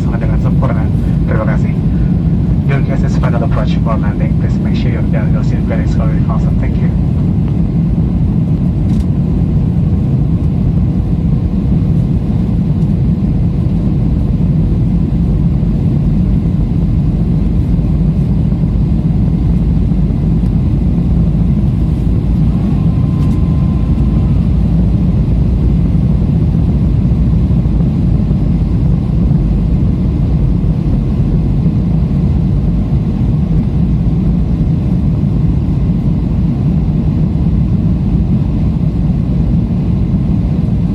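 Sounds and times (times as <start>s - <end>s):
airflow noise: 0.0s - 14.4s, 15.7s - 32.4s
jet engine rumble in cabin: 0.0s - 40.9s.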